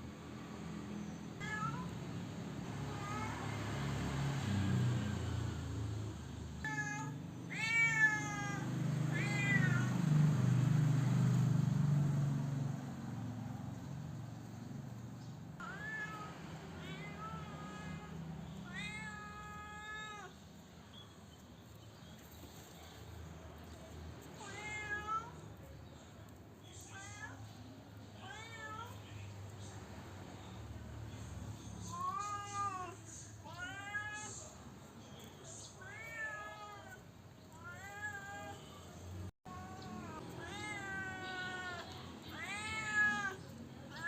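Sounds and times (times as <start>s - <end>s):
cat meowing: 1.0s - 2.0s, 2.8s - 3.6s, 6.6s - 10.0s, 15.6s - 20.4s, 24.4s - 25.5s, 31.8s - 34.6s, 35.2s - 38.8s, 39.5s - 44.0s.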